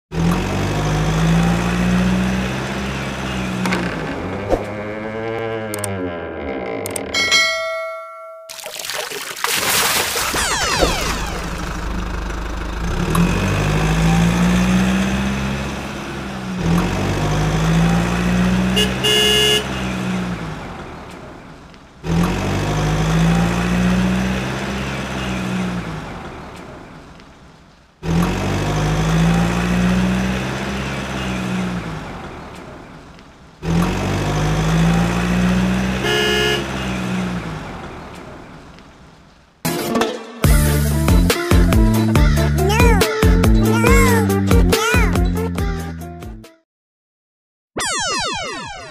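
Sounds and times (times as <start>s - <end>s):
heavy vehicle engine revving: 0.1s - 6.1s, 10.4s - 21.1s, 22.0s - 26.6s, 28.0s - 32.6s, 33.6s - 38.2s.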